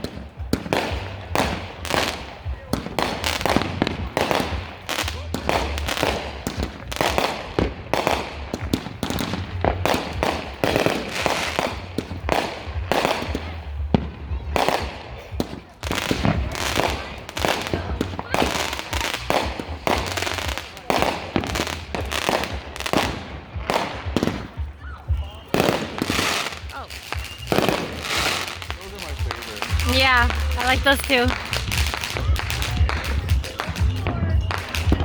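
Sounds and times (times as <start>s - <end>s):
fireworks bangs and bursts: 0.0s - 35.0s.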